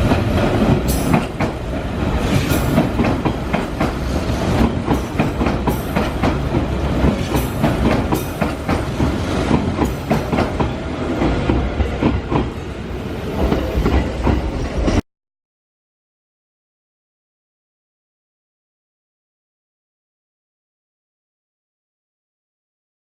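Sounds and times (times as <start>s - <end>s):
train wheels clattering over joints: 0.0s - 12.6s.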